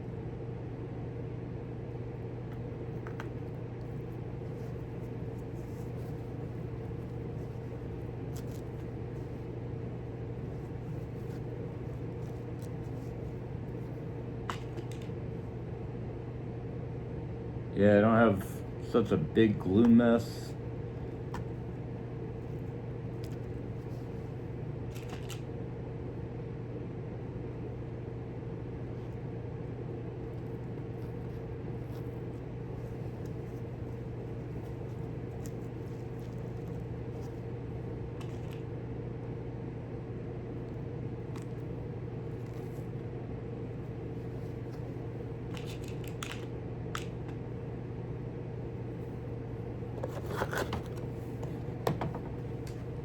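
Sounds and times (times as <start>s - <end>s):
steady low hum: 0.0s - 53.0s
clicks of small hardware handled: 45.5s - 47.2s.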